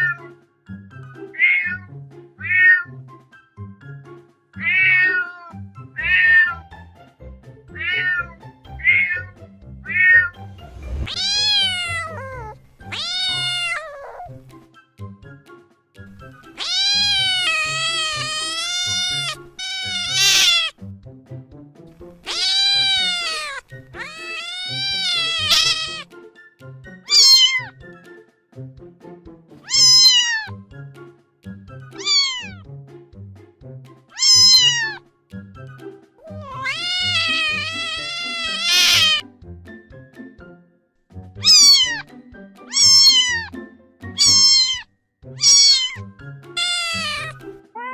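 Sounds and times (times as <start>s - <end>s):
background music: 0.0s - 47.9s
cats meowing: 1.3s - 2.9s, 4.6s - 6.6s, 7.8s - 9.3s, 10.9s - 14.4s, 16.4s - 20.7s, 22.2s - 26.1s, 27.1s - 27.7s, 29.7s - 30.6s, 32.0s - 32.7s, 34.1s - 35.0s, 36.2s - 39.2s, 41.4s - 47.9s.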